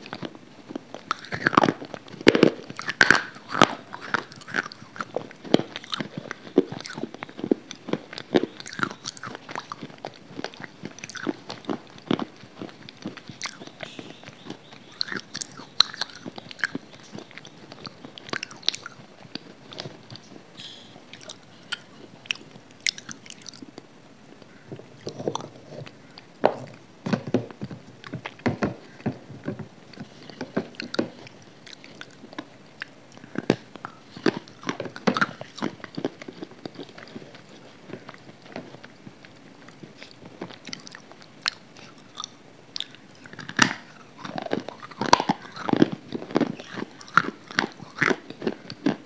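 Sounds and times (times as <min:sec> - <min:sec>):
person crunching and chewing: 0:00.0 - 0:49.0.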